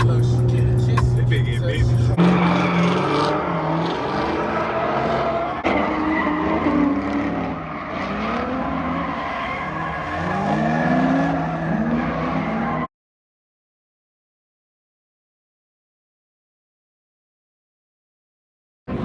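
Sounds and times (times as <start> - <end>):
car engine revving hard: 0.0 - 12.8.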